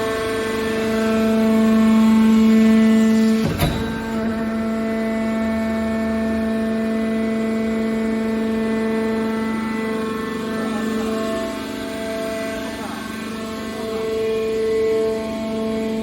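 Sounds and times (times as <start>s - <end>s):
hydraulic power unit humming: 0.1s - 16.0s
sharp knock: 3.4s - 4.9s.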